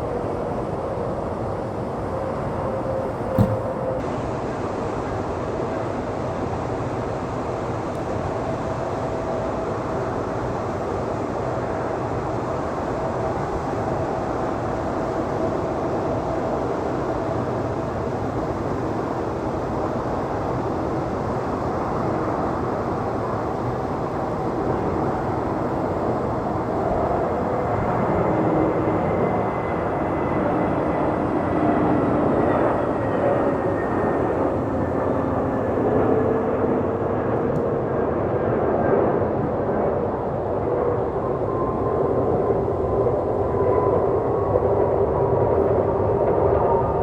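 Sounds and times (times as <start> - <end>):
jet engines rumbling: 0.0 - 10.0, 21.3 - 47.0.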